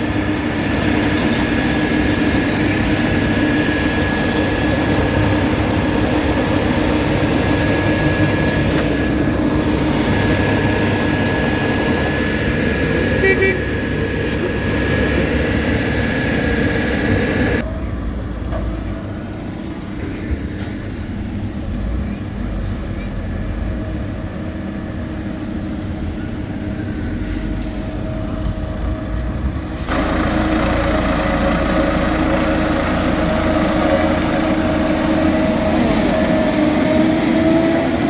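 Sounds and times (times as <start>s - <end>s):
high steady machine whine: 0.0s - 21.7s, 23.4s - 38.0s
road-paving machinery diesel engine: 0.0s - 38.0s
short horn toot: 13.2s - 13.7s.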